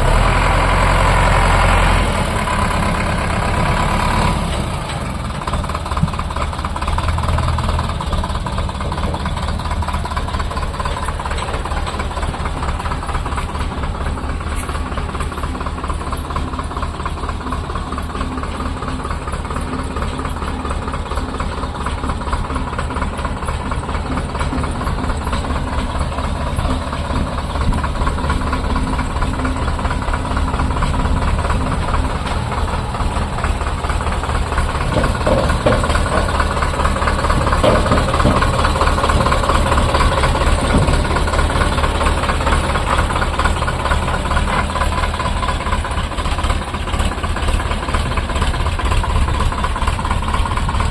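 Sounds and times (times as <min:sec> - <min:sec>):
tractor diesel engine clattering: 0:00.0 - 0:50.9.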